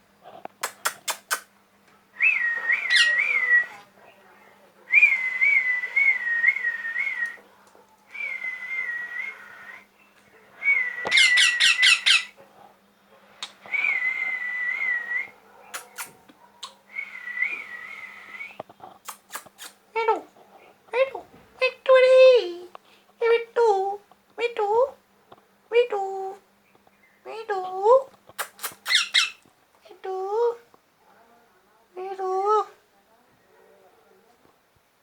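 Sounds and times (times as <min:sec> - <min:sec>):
parrot whistling: 0:02.2 - 0:03.7, 0:10.7 - 0:12.3, 0:28.8 - 0:29.4
parrot squawk: 0:02.9 - 0:03.2, 0:11.1 - 0:12.4, 0:28.4 - 0:29.4.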